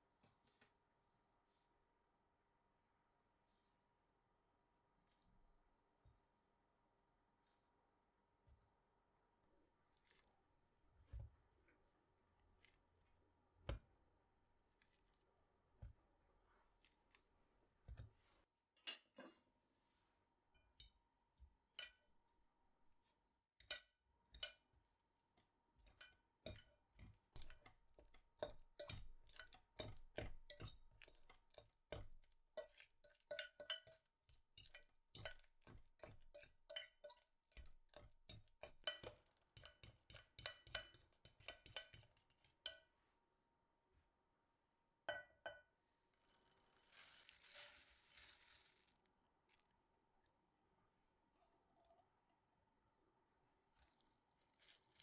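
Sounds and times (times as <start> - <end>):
dishes and utensils clinking: 25.8 - 42.8.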